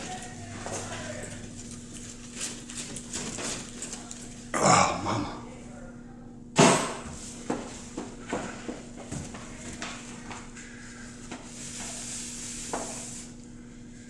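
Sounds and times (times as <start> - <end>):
hiss: 11.5 - 13.4.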